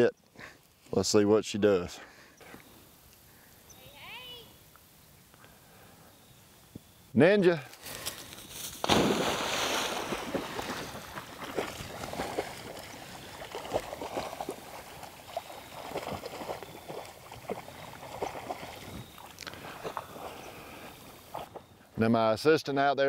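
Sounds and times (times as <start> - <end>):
dog splashing and paddling in water: 8.9 - 20.5.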